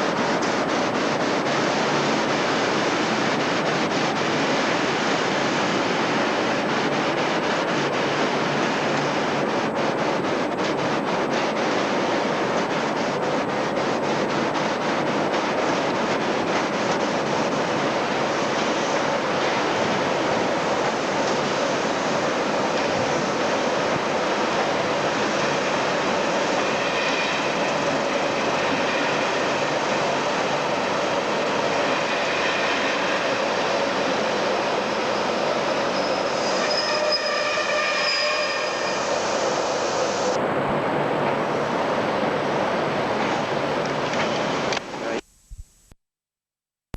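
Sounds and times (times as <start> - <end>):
train running on track: 0.0 - 45.2
high-pitched wheel squeal: 35.2 - 39.4.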